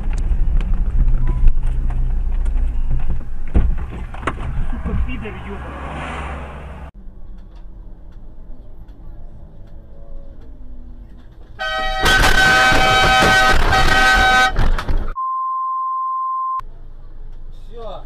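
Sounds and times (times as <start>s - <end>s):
car horn blaring: 11.6s - 16.5s
steady single-pitched beep: 15.2s - 16.6s.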